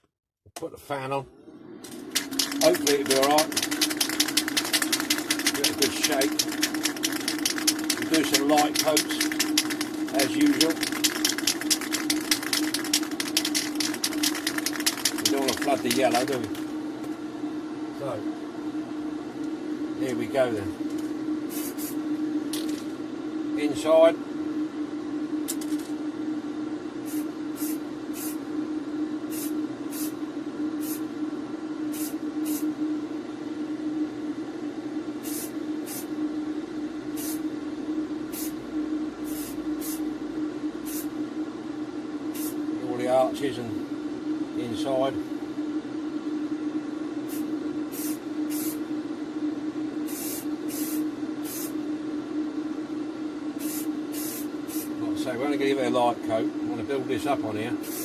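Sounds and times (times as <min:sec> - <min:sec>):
electric fan humming: 0:00.6 - 0:58.0
aerosol spray can hissing: 0:02.2 - 0:16.4, 0:21.5 - 0:22.0, 0:27.1 - 0:28.4, 0:29.3 - 0:30.2, 0:30.8 - 0:31.0, 0:31.9 - 0:32.6, 0:35.2 - 0:36.1, 0:37.2 - 0:37.4, 0:38.3 - 0:38.6, 0:39.3 - 0:40.0, 0:40.9 - 0:41.1, 0:42.4 - 0:42.6, 0:47.3 - 0:48.8, 0:50.1 - 0:51.8, 0:53.6 - 0:54.9.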